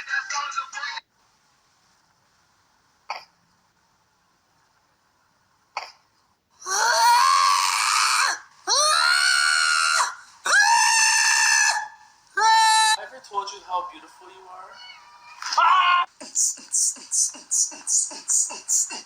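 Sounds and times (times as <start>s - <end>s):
cat yowling: 14.7s - 16.1s.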